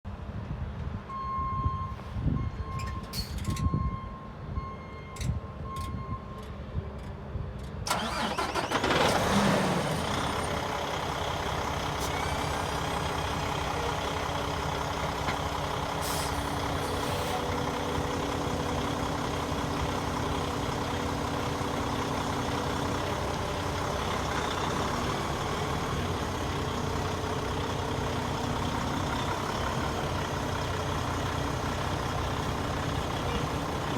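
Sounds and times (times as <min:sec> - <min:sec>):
diesel truck engine starting and idling: 0:07.6 - 0:33.9.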